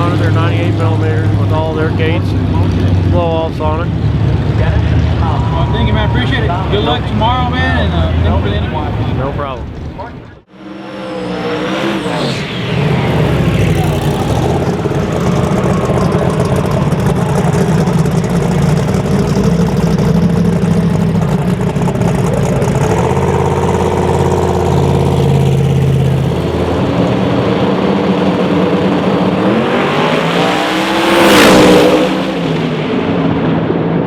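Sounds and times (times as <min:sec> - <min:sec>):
drag race car engines running: 0:00.0 - 0:34.0
car sweeping past: 0:10.5 - 0:18.0.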